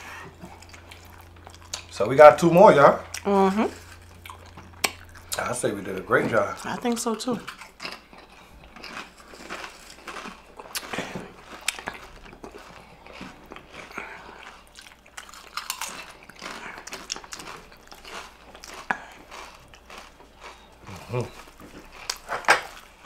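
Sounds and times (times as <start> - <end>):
chips crunching while chewing: 6.6 - 23.0.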